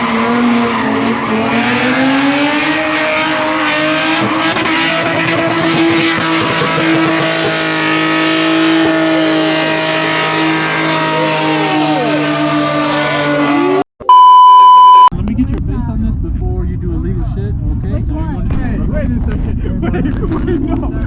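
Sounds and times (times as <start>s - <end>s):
car engine revving high: 0.0s - 13.8s
tires squealing: 0.0s - 13.8s.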